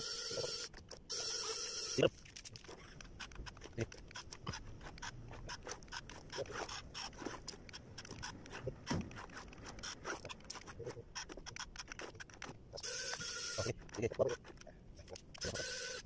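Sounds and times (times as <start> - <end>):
cardboard clicking and scraping: 2.2 - 12.6.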